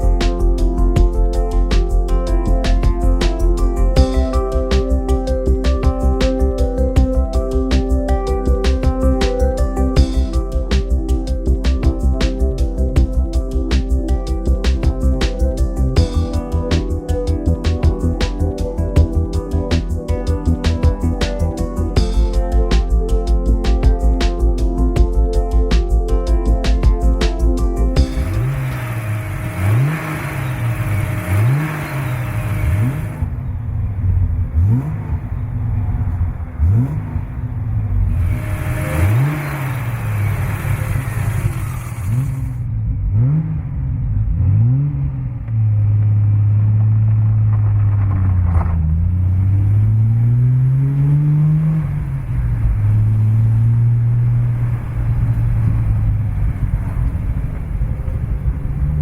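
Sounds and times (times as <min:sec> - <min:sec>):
car engine revving: 0:26.6 - 0:59.0.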